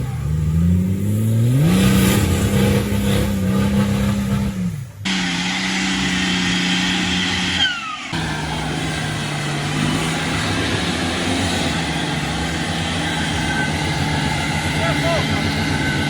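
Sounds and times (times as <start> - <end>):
vehicle engine under load: 0.0 - 16.0
falling whine: 5.1 - 16.0.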